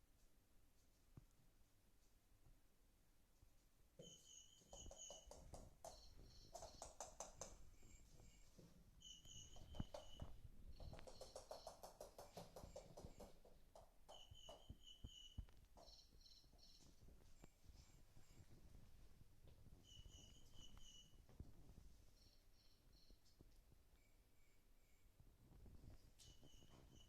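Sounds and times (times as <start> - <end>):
rapid clicking trills: 4.6 - 7.7, 9.2 - 14.8.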